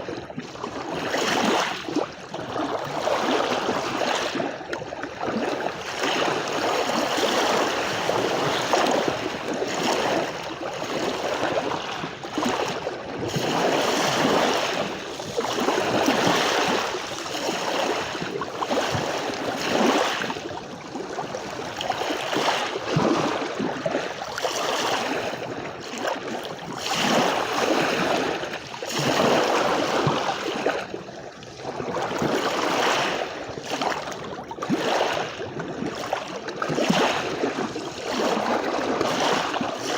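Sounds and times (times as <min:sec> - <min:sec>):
sea waves washing onto beach: 0:05.3 - 0:30.9.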